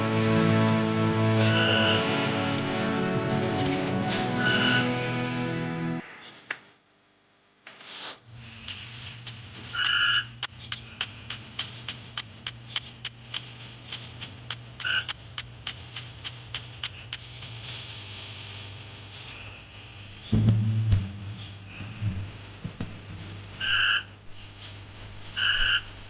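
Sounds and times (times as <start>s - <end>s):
steady low hum: 8.2s - 26.0s
frog calling: 9.8s - 10.3s, 23.6s - 24.2s, 25.4s - 25.9s
low rumble: 20.3s - 23.6s.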